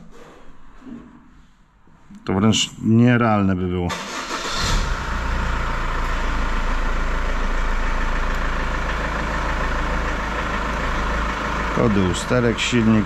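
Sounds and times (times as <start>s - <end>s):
diesel engine idling: 3.9s - 13.0s.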